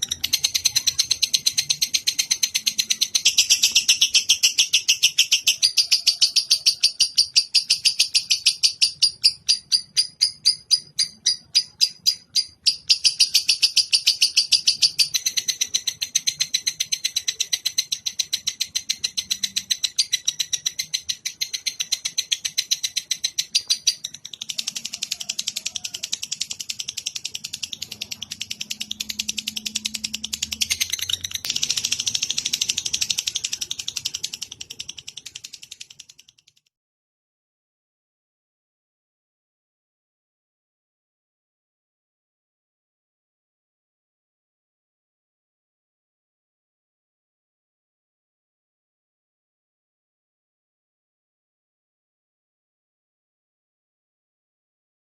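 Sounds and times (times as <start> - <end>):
recorded songbird song: 0.0 - 36.7.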